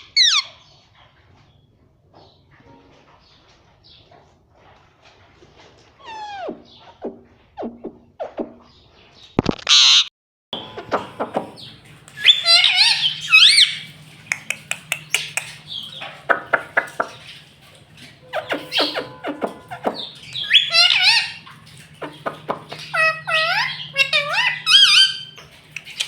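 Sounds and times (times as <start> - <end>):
parrot calling and chattering: 0.0 - 0.6, 10.7 - 17.5, 18.2 - 26.0
parrot screeching: 0.0 - 0.6, 12.2 - 13.9, 18.2 - 26.0
parrot clicks: 14.3 - 15.6.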